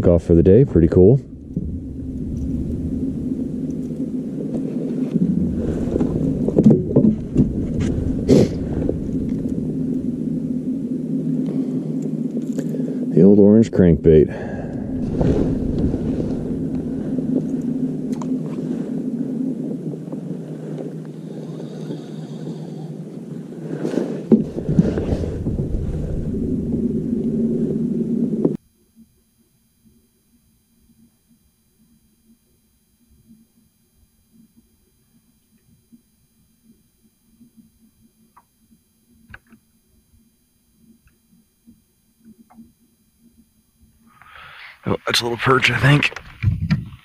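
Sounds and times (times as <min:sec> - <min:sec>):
wind noise: 0:00.0 - 0:21.6, 0:23.7 - 0:28.6, 0:44.9 - 0:47.0
steady low hum: 0:00.0 - 0:47.0
knocks and clunks on a kayak: 0:05.9 - 0:08.0.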